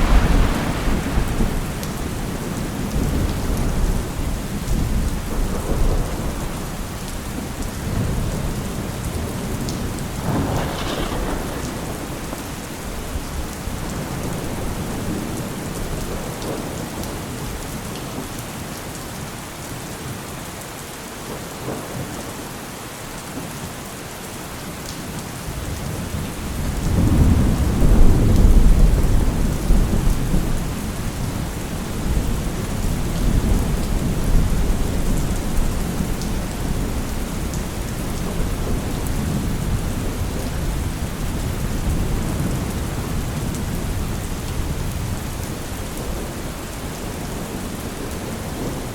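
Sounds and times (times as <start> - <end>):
sharp thunder crack: 0.0 - 4.0, 10.2 - 15.3
thunder rumbling: 0.0 - 17.1, 26.1 - 48.9
heavy rain: 0.0 - 48.9.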